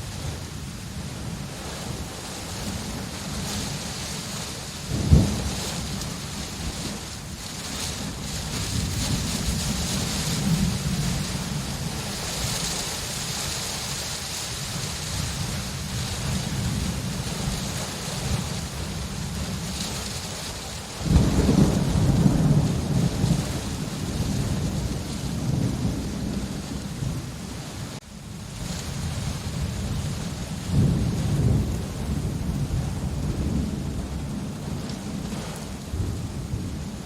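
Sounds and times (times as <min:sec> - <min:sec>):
steady rain: 0:00.0 - 0:37.0
rolling thunder: 0:04.8 - 0:13.4, 0:14.7 - 0:20.2, 0:21.0 - 0:37.0
loud thunder peal: 0:04.9 - 0:06.0, 0:21.0 - 0:27.4.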